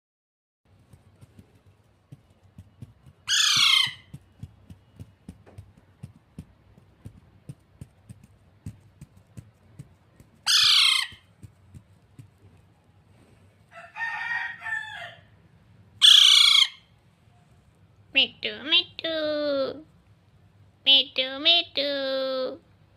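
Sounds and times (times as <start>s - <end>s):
parrot chattering calls: 3.2s - 4.2s, 10.4s - 11.3s, 16.0s - 16.9s
parrot screeching: 3.3s - 4.1s, 10.4s - 11.3s, 16.0s - 16.9s.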